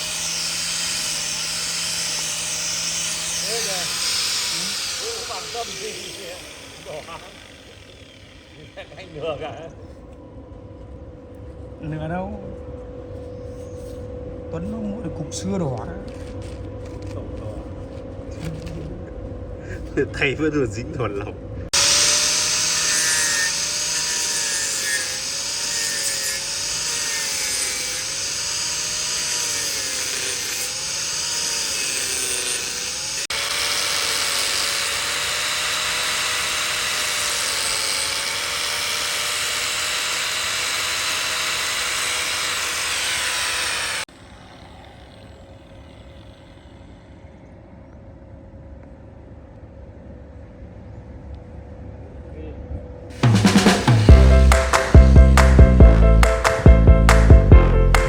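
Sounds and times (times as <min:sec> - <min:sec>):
wood lathe cutting wood: 0:00.0 - 0:09.3, 0:21.7 - 0:47.0, 0:53.2 - 0:58.0.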